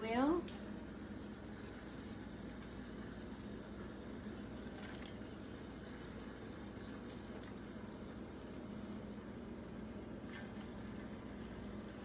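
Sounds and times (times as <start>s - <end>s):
soft clicks of onions: 4.5s - 5.4s.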